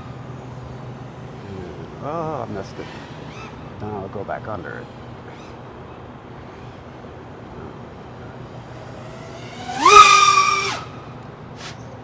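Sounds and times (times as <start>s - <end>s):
drone motors whining: 8.4s - 11.8s.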